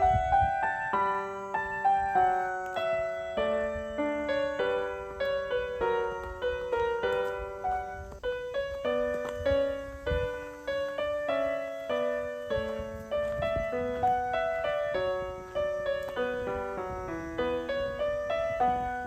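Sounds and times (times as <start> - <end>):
piano melody: 0.0 - 19.0.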